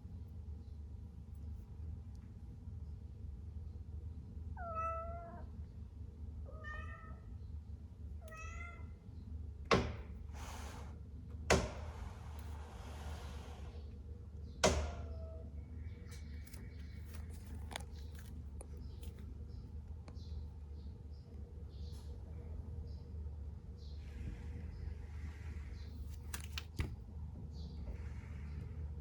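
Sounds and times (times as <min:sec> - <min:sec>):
cat meowing: 0:04.6 - 0:05.5, 0:06.5 - 0:07.3, 0:08.2 - 0:08.9.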